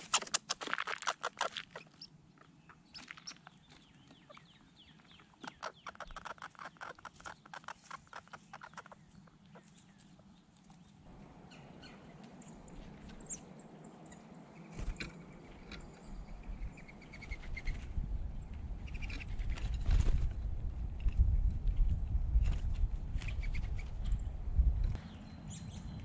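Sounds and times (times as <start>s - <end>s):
small birds chirping: 0.0s - 20.4s, 22.4s - 26.0s
low rumbling noise: 17.8s - 26.0s.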